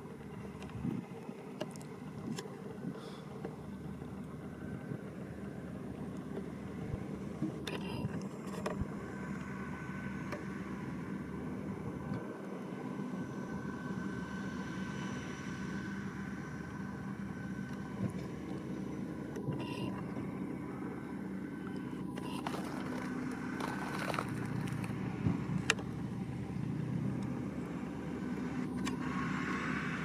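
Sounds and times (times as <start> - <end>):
baler high whine: 0.0 - 30.0
tractor engine drone: 0.0 - 30.0.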